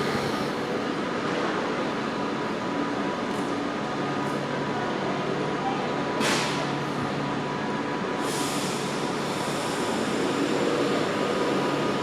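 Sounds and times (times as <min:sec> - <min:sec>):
short sharp air hiss: 0:06.2 - 0:06.7
electric train humming: 0:07.2 - 0:12.0.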